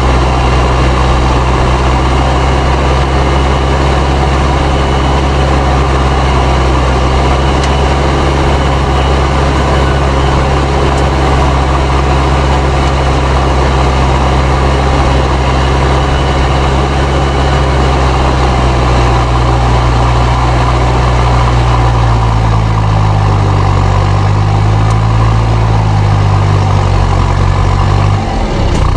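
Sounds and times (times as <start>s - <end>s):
tractor diesel engine running: 0.0s - 28.9s
turbo whistling: 0.0s - 28.9s.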